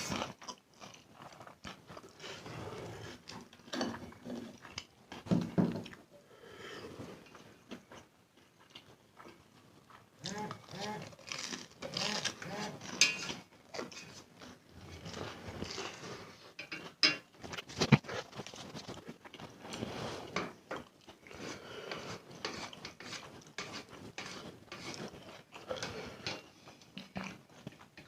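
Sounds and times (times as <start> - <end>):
chewing and mouth noises: 0.0 - 4.9, 7.2 - 16.3.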